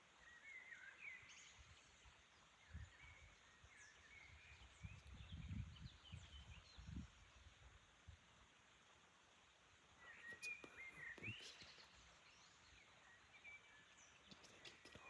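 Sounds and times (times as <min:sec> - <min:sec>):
birds chirping and warbling: 0:10.0 - 0:15.0.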